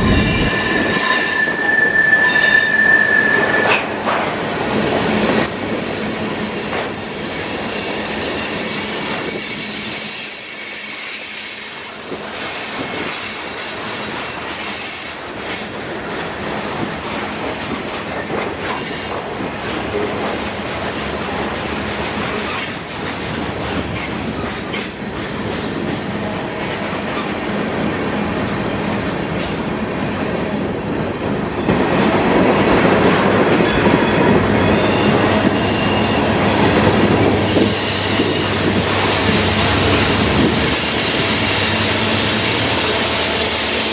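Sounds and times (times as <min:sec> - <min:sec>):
steel wheels clattering on rail: 0:00.0 - 0:27.6, 0:29.0 - 0:43.9
faint high wheel squeals: 0:00.2 - 0:03.9.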